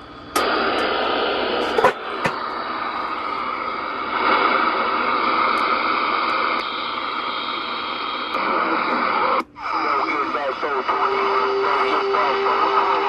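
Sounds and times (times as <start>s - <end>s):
radio static hiss: 4.1s - 13.0s.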